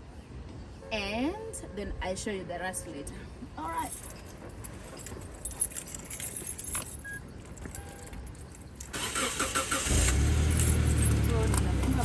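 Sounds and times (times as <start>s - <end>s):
car keys jangling: 3.8s - 12.0s.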